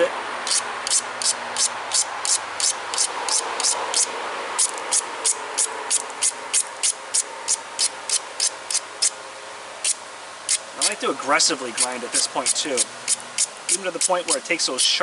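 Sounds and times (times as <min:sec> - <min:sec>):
stone grinding rasps: 0:00.5 - 0:09.1, 0:11.7 - 0:14.5.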